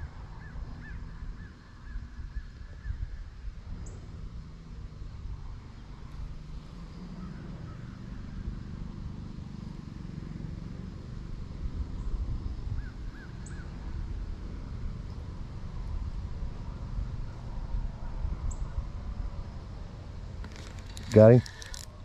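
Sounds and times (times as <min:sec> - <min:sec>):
wind on the microphone: 0:00.0 - 0:04.5
distant bird calling: 0:06.6 - 0:08.7, 0:12.7 - 0:13.8.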